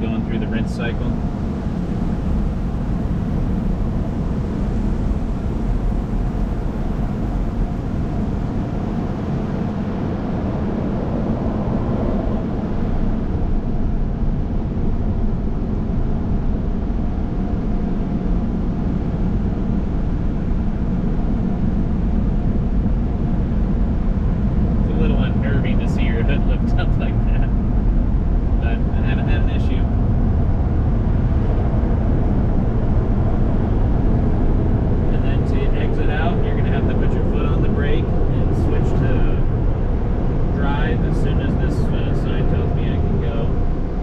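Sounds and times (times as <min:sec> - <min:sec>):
car wash machinery rushing: 0:31.6 - 0:43.6.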